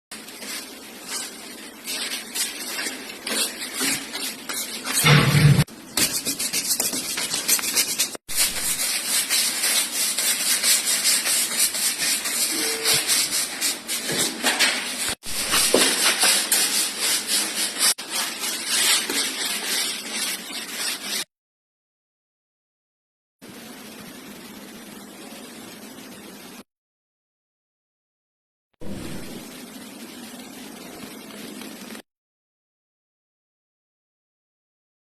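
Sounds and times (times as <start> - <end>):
trowel scraping plaster: 0.2 - 21.3.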